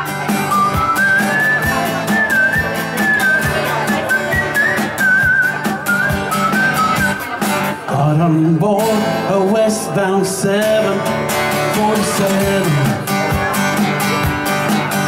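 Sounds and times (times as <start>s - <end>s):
acoustic guitar strumming: 0.0s - 15.0s
whistled melody: 0.3s - 7.7s.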